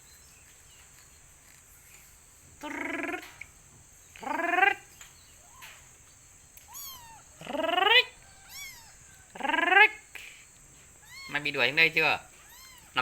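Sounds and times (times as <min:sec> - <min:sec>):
high falling calls: 0:00.6 - 0:10.4
cat meowing: 0:06.6 - 0:07.8, 0:08.4 - 0:09.4, 0:11.0 - 0:11.6, 0:12.3 - 0:13.0.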